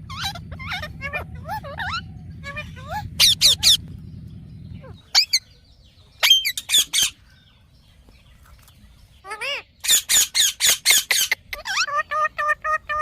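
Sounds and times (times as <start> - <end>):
parakeet screeching: 0.0 - 3.8, 4.8 - 5.4, 6.2 - 7.2, 9.2 - 13.0.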